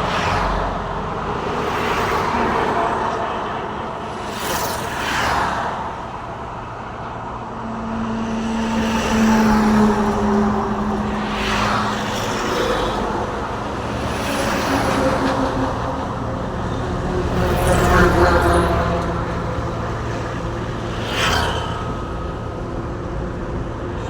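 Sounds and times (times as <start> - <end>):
vehicles passing whooshes: 0.0 - 24.0
vehicle engine hum: 5.7 - 24.0.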